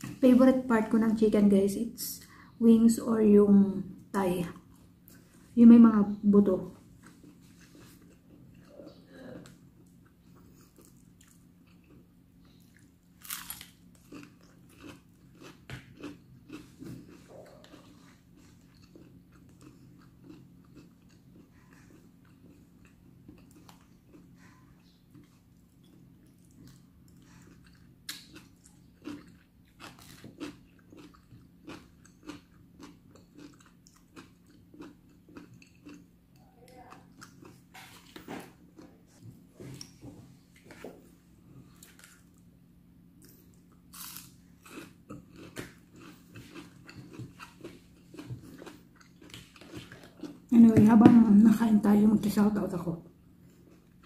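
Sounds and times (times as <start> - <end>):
wet chewing: 9.8 - 40.0, 43.2 - 50.5
fried chicken crunching: 12.8 - 24.3, 25.8 - 36.0.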